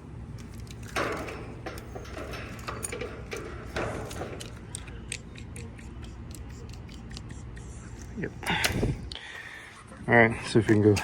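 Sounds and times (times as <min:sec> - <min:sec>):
steady low hum: 0:00.0 - 0:11.0
metal tools clicking and rattling: 0:00.3 - 0:06.5.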